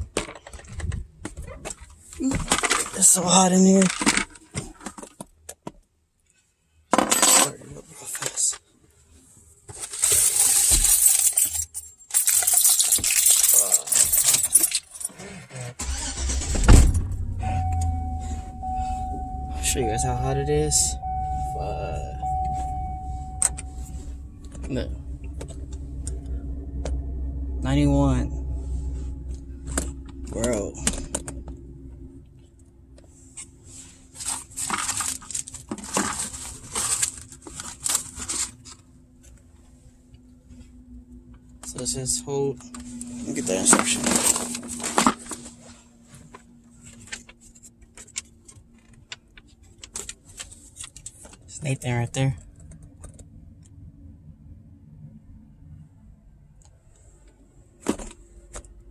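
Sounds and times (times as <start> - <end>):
paper and packaging rustling: 9.7 - 11.3, 33.7 - 38.9
keys jangling: 10.0 - 15.2
pickup engine cranking and idling: 15.8 - 51.2.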